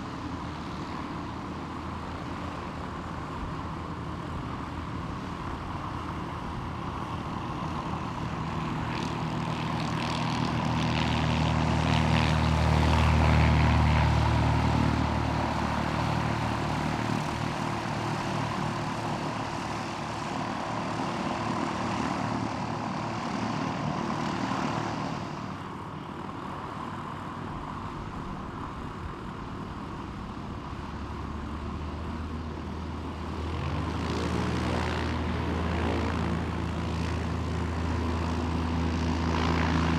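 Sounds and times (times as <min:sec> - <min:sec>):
propeller aircraft passing: 0:00.0 - 0:39.9
second propeller engine: 0:00.0 - 0:39.9.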